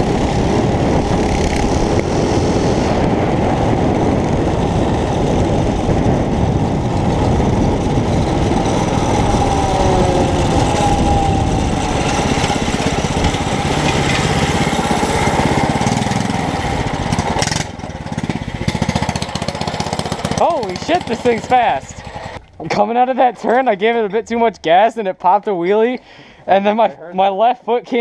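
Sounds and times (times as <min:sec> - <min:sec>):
small engine running: 0:00.0 - 0:22.4.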